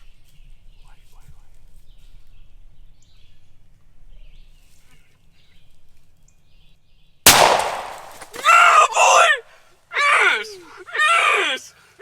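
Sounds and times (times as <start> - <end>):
faint outdoor ambience: 0.0 - 12.0
shotgun shot with echo: 7.3 - 8.3.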